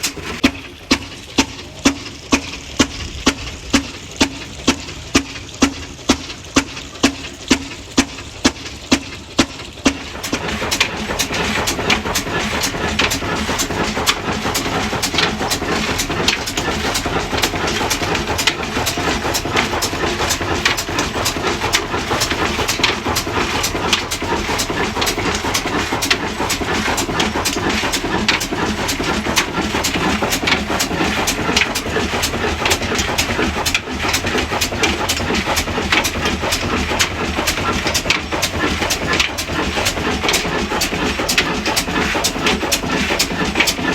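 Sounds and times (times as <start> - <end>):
diesel engine starting and running: 0.0 - 43.9.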